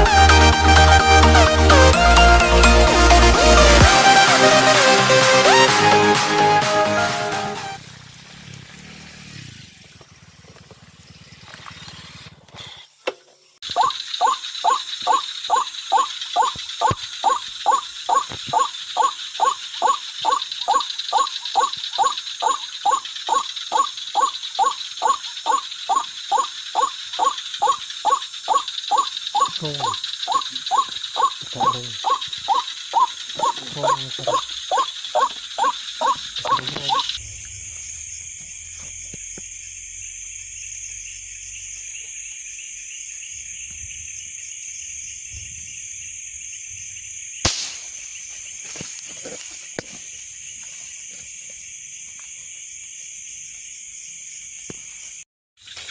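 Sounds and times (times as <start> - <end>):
night insects chirring: 7.7 - 55.9
waterhen calling: 13.6 - 37.2.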